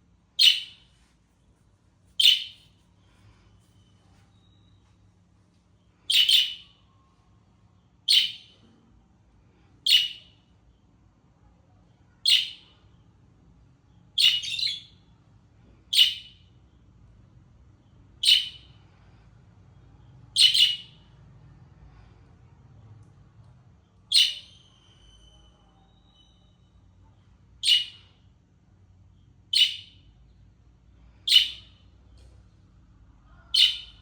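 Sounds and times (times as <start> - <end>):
budgerigar chirping: 0.4 - 0.8, 2.2 - 2.6, 6.1 - 6.7, 8.1 - 8.5, 9.9 - 10.3, 12.2 - 12.7, 14.2 - 15.0, 15.9 - 16.4, 18.2 - 18.7, 20.4 - 21.0, 24.1 - 25.2, 27.6 - 28.1, 29.5 - 30.0, 31.3 - 31.8, 33.5 - 34.0.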